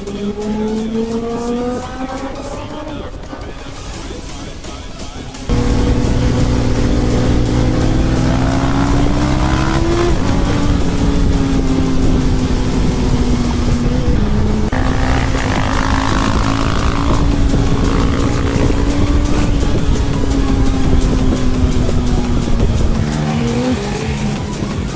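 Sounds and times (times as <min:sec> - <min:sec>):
motorcycle engine running: 0:05.5 - 0:24.9.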